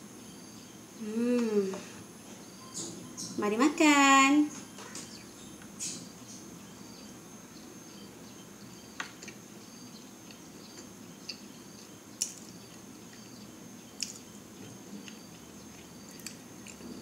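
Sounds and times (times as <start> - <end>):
room hum: 0.0 - 17.0
person chewing soft bread: 9.0 - 9.5, 10.2 - 17.0.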